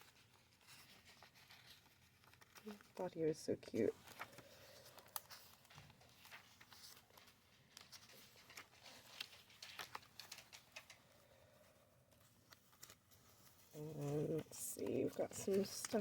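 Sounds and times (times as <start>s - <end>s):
paper pages being turned: 0.0s - 16.0s.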